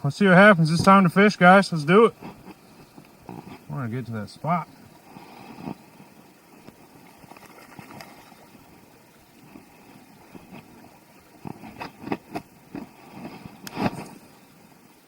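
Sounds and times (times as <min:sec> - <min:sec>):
steady background hiss: 0:00.0 - 0:15.0
footsteps on rocks and gravel: 0:09.4 - 0:14.3.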